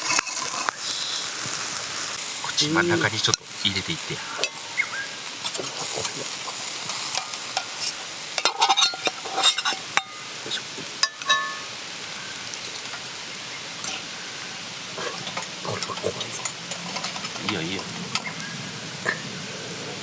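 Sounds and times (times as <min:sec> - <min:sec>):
metal utensil scraping a pan: 0:00.0 - 0:02.2, 0:04.4 - 0:11.8, 0:15.0 - 0:18.4
oil sizzling in a pan: 0:00.0 - 0:20.0.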